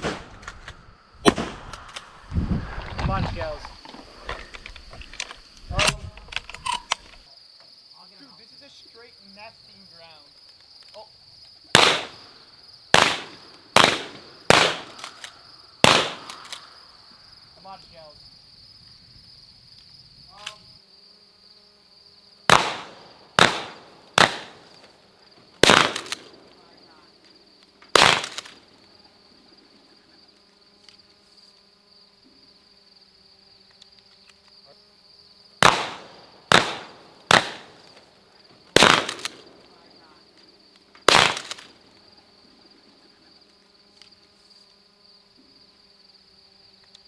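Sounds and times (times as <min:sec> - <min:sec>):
shotgun shots: 0:00.0 - 0:00.6, 0:01.2 - 0:01.8, 0:11.8 - 0:16.7, 0:22.5 - 0:24.9, 0:25.6 - 0:26.5, 0:27.9 - 0:28.6, 0:35.6 - 0:38.0, 0:38.7 - 0:39.6, 0:41.0 - 0:41.7
insects chirring: 0:00.0 - 0:47.0.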